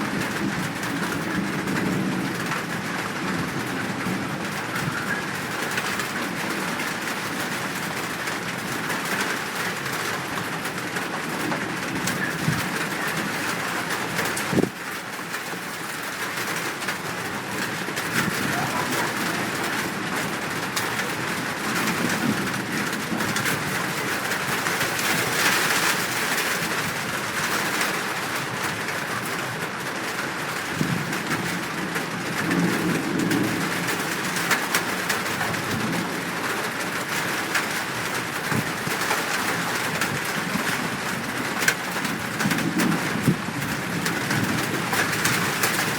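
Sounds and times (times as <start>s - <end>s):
dove cooing: 18.2s - 20.0s
wild birds calling: 18.2s - 20.0s.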